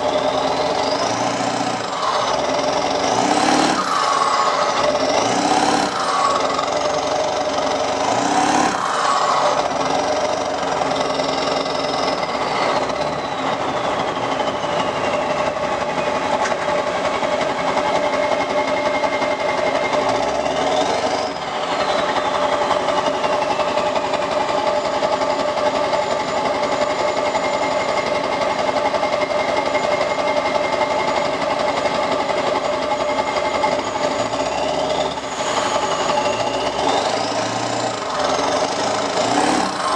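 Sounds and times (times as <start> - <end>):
turbo whistle winding down: 0.0 - 16.2, 33.0 - 39.9
diesel engine clattering and revving: 0.0 - 39.9.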